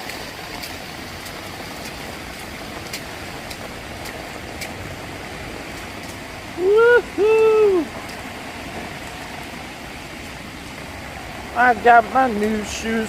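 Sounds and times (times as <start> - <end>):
rain falling: 0.0 - 13.0
man shouting woo-hoo: 6.6 - 8.0.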